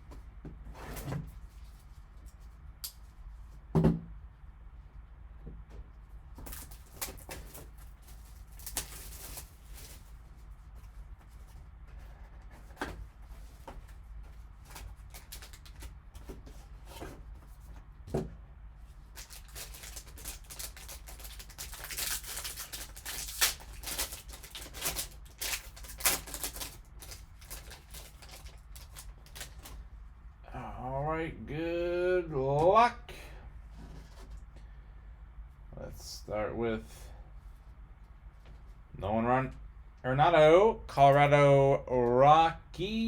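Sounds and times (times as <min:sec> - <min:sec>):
steady low hum: 0:00.0 - 0:43.0
wrapper crinkling and tearing: 0:06.4 - 0:10.1, 0:14.7 - 0:15.9, 0:19.1 - 0:29.8
cardboard and cards rustling: 0:06.4 - 0:18.3, 0:19.0 - 0:29.9, 0:33.8 - 0:34.5.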